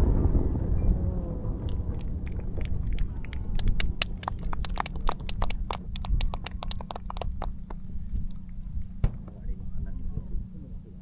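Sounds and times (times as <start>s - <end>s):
low rumble: 0.0s - 11.0s
fireworks crackling pops: 1.6s - 7.7s.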